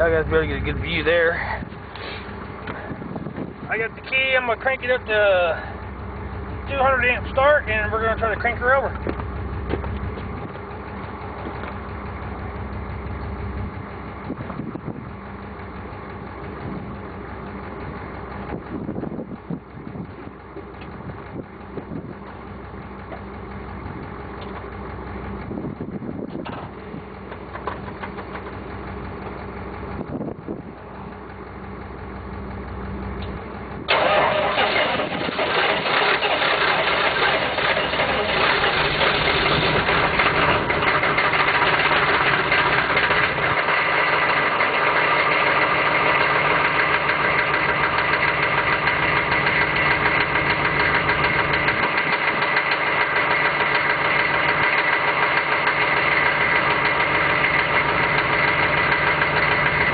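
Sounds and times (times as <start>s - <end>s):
loud diesel engine idling: 0.0s - 59.9s
starter cranking engine: 26.4s - 29.3s, 33.2s - 59.9s.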